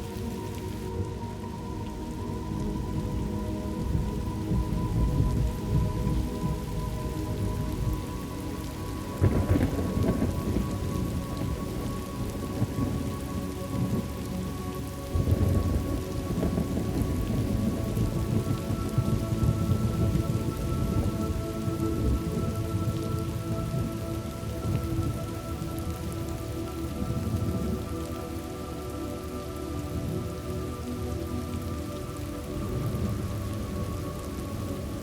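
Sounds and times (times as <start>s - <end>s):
heavy rain: 0.0s - 35.0s
rolling thunder: 9.2s - 13.2s, 15.1s - 24.0s.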